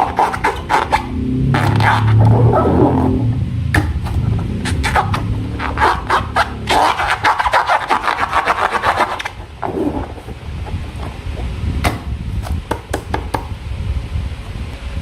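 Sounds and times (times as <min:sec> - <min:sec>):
slime crackling and rubbing: 0:00.0 - 0:02.4, 0:04.6 - 0:10.4.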